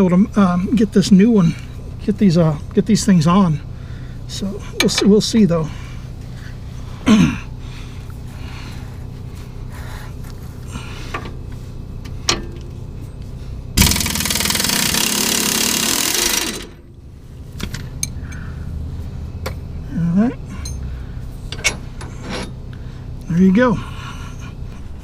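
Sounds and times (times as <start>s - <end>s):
steady low hum: 0.0s - 25.0s
impact wrench hammering: 13.8s - 16.9s.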